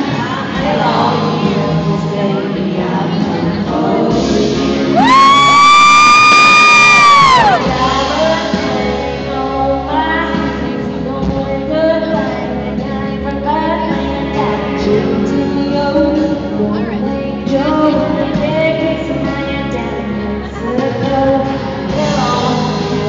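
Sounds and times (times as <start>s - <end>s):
live country band: 0.0s - 23.0s
women singing: 7.2s - 23.0s.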